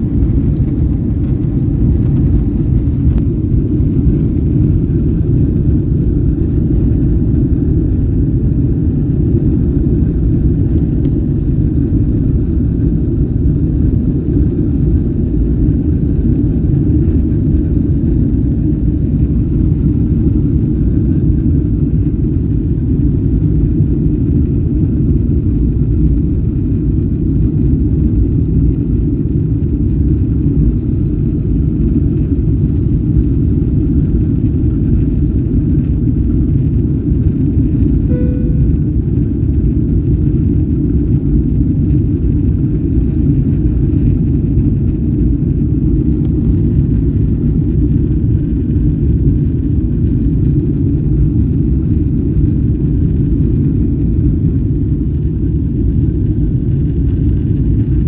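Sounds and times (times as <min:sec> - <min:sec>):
jet engine rumble in cabin: 0:00.0 - 0:58.0
faint hum: 0:30.3 - 0:36.1, 0:37.9 - 0:39.7.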